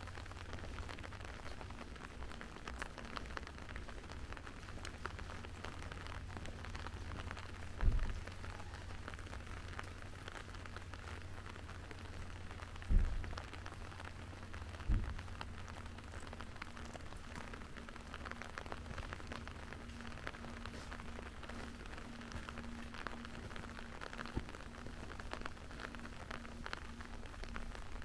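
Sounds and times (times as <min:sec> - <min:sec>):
steady rain falling: 0:00.0 - 0:28.0
dull low thumps: 0:12.8 - 0:13.5, 0:14.7 - 0:15.4.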